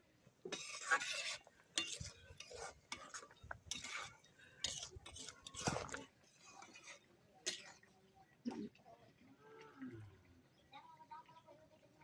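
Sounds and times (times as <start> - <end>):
metal spoon scraping in pot: 0.5 - 7.9.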